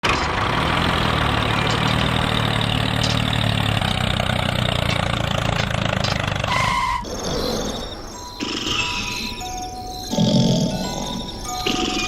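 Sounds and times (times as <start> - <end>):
small engine idling: 0.0 - 6.6.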